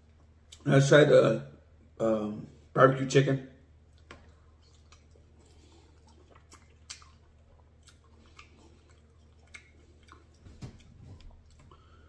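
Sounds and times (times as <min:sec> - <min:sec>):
faint chewing: 0:03.8 - 0:12.0
wet mouth clicks: 0:03.9 - 0:11.8.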